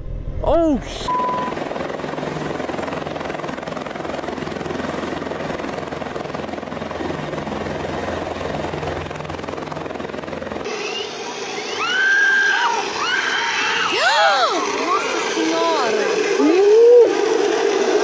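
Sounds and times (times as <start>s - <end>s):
aircraft engine drone: 0.0s - 14.0s
high gliding cries: 5.7s - 15.6s.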